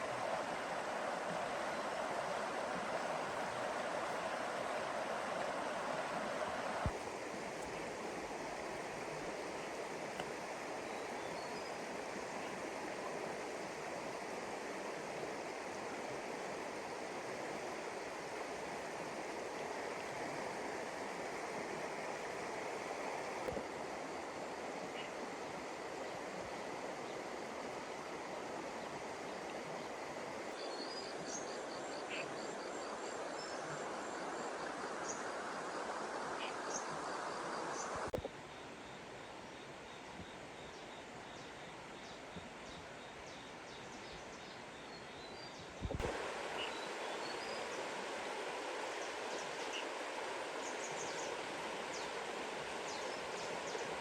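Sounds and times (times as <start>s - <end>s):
floodwater rushing: 0.0s - 10.8s, 46.0s - 54.0s.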